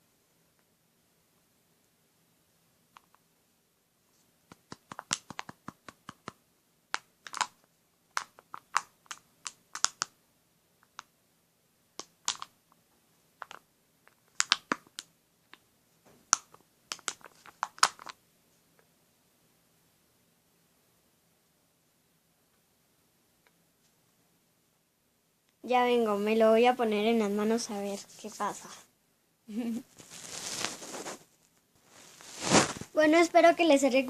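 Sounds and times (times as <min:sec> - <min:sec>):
slime tapping and clicking: 0:04.5 - 0:06.4.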